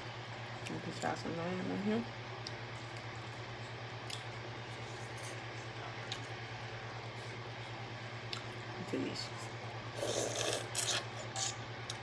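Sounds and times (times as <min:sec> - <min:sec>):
low electrical hum: 0:00.0 - 0:12.0
eating and mouth sounds: 0:09.9 - 0:12.0.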